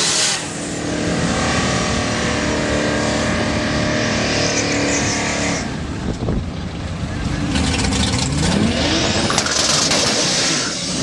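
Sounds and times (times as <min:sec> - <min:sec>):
car engine at low revs: 0:00.4 - 0:11.0.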